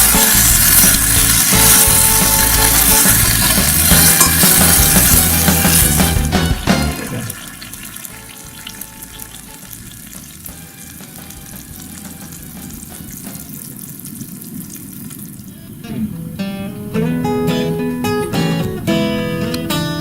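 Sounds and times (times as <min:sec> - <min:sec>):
food sizzling in oil: 0:00.0 - 0:15.6.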